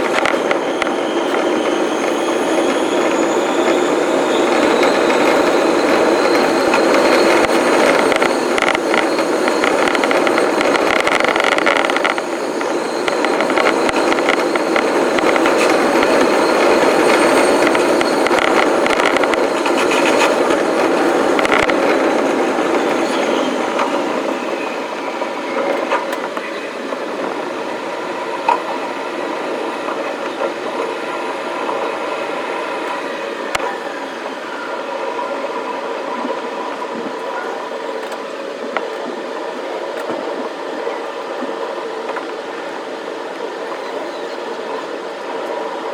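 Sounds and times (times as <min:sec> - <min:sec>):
faint electric motor whine: 0:00.0 - 0:35.6
train rolling on rails: 0:00.0 - 0:45.9.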